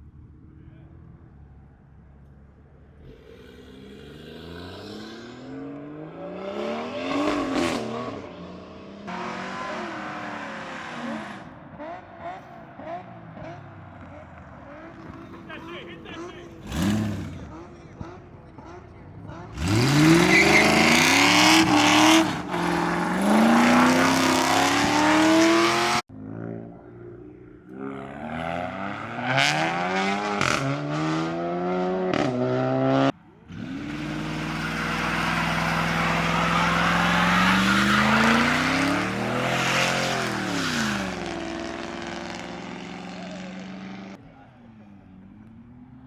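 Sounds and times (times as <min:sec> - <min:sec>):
car engines revving: 0:00.0 - 0:46.0
spinning tyres hissing: 0:33.5 - 0:43.9.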